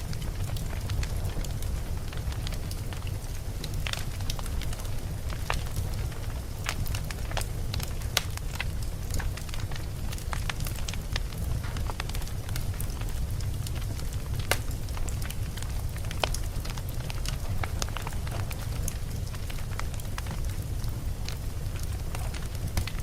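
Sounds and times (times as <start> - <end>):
wood crackling and popping: 0.0 - 23.0.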